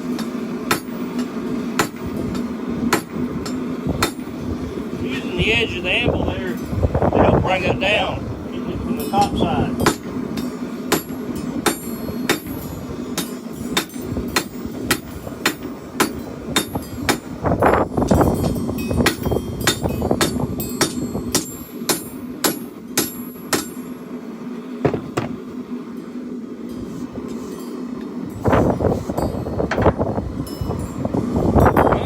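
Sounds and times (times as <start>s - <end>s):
hammer striking hot steel on anvil: 0.0s - 4.4s, 9.0s - 24.0s
propane forge burner roaring: 0.0s - 32.0s.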